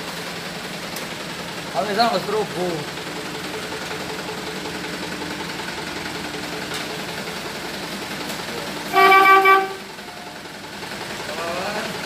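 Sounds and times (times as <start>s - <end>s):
truck engine idling: 0.0s - 12.0s
horn blast: 8.9s - 9.9s.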